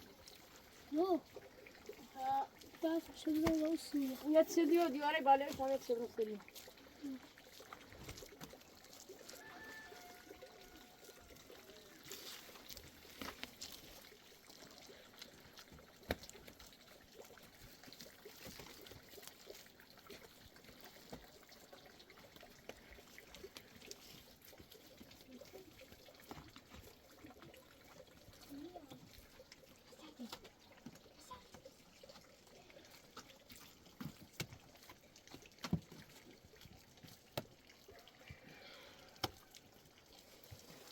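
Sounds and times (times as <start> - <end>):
faint trickling water: 0.0 - 40.9.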